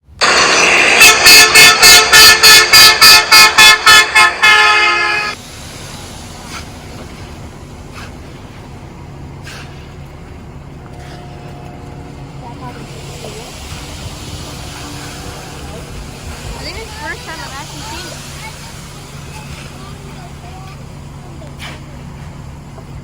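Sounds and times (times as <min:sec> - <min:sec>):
horn blasts: 0:00.2 - 0:05.4, 0:14.3 - 0:20.2
faint engine hum: 0:04.2 - 0:23.0.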